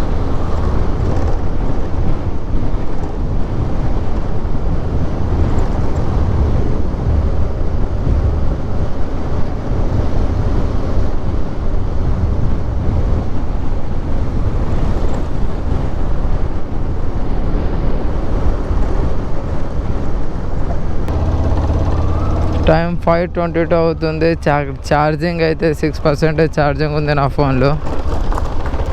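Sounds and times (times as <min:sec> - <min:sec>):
road noise: 0:00.0 - 0:28.9
wind noise on microphone: 0:00.0 - 0:28.9
motorcycle engine: 0:21.0 - 0:25.2, 0:27.6 - 0:28.9.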